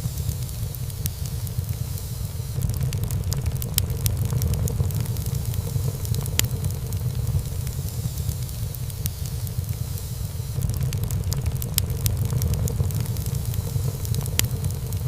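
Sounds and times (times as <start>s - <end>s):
fire rumbling: 0.0s - 15.0s
wood crackling and popping: 0.0s - 15.0s.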